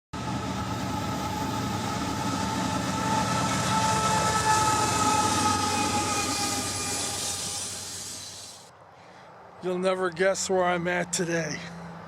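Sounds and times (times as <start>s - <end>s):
train wheels rumbling and rattling: 0.2s - 8.7s
hiss: 6.4s - 8.7s.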